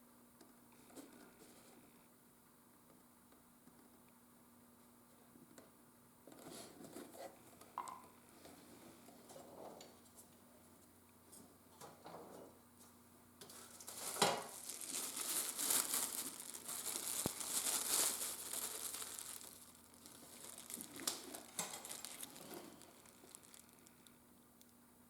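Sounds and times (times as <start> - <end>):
rustling crinkling handling noise: 12.8 - 24.2.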